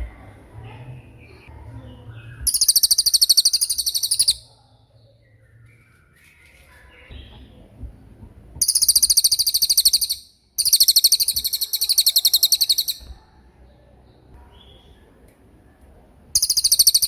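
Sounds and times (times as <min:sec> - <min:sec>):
soft bird chirps: 0:00.7 - 0:07.8, 0:08.6 - 0:15.1, 0:16.4 - 0:17.0
songbird rattling trill: 0:02.5 - 0:04.5, 0:08.6 - 0:13.1, 0:16.3 - 0:17.0.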